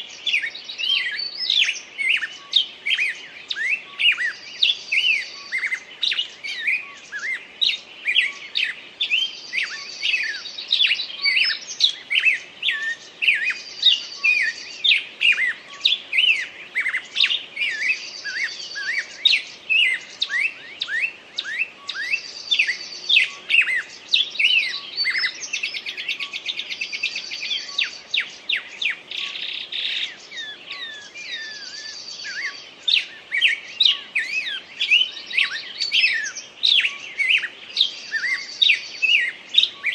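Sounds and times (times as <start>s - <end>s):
songbirds singing: 0.0s - 39.9s
bird trilling: 15.2s - 39.9s.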